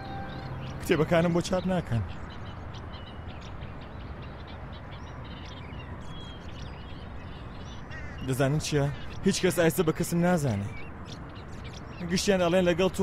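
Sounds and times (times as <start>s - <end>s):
outdoor background hiss: 0.0s - 13.0s
small birds chirping: 0.0s - 13.0s.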